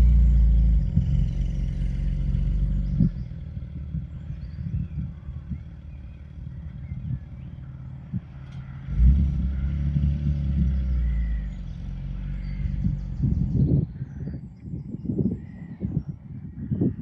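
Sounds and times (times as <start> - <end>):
car engine driving past: 0.0 - 13.8
low steady rumble: 0.0 - 17.0.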